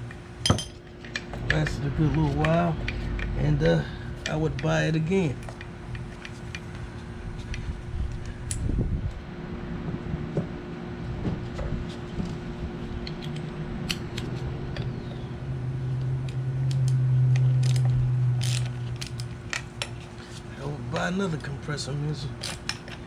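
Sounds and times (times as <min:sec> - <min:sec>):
low mechanical hum: 0:00.0 - 0:23.0
small parts clicking and tapping: 0:16.0 - 0:20.2.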